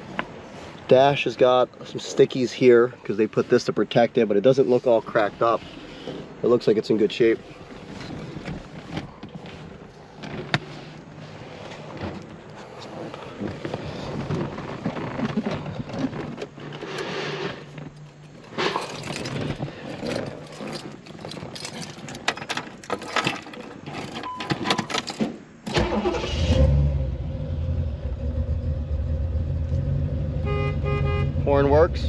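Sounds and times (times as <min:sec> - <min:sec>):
keys jangling: 0:18.7 - 0:24.1
car engine starting and idling: 0:25.6 - 0:32.0.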